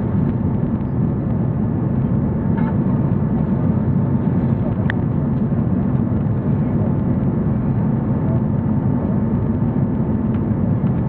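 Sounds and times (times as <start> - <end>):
airliner cabin engine drone: 0.0 - 11.0.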